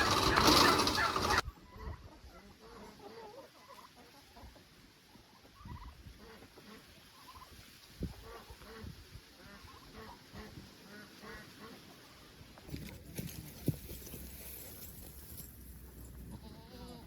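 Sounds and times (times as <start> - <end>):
poultry clucking: 0.0 - 13.1, 16.2 - 17.0.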